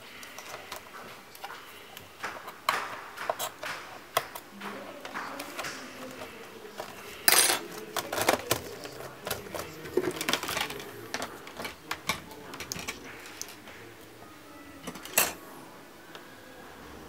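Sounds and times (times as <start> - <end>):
small tools clicking and clinking: 5.4 - 13.6, 14.8 - 15.4.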